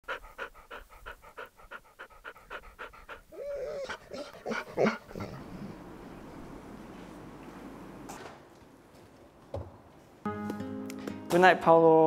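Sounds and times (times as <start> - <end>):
dog panting: 0.0 - 5.9
dog huffing: 0.0 - 6.0
dog whining: 3.1 - 5.9.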